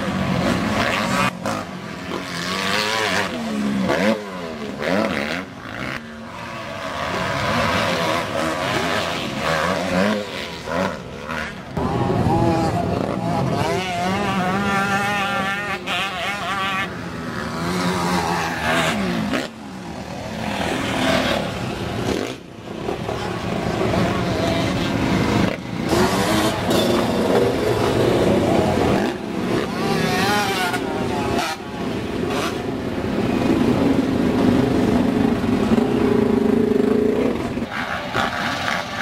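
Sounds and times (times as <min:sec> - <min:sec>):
motocross bikes revving: 0:00.0 - 0:39.0.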